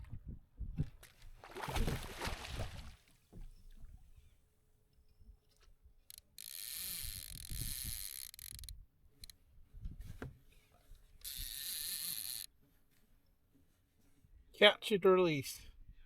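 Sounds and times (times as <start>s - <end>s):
fishing reel whirring: 6.1s - 9.3s, 11.2s - 12.5s.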